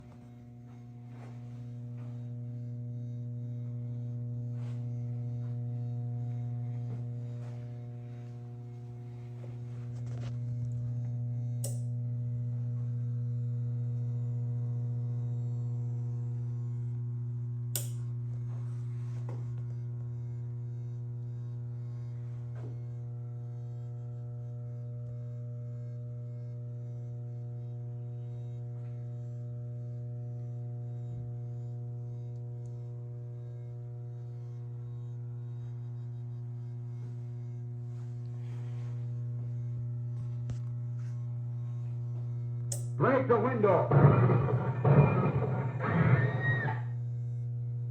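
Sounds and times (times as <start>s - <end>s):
electrical mains hum: 0.0s - 47.9s.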